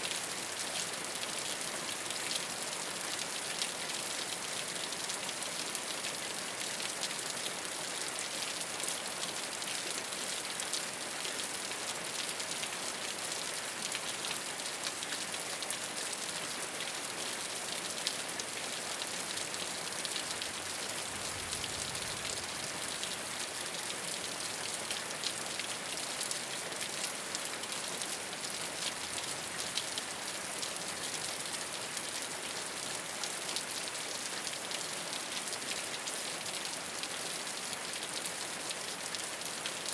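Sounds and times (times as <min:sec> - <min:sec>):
rain on a rooftop: 0:00.0 - 0:39.9.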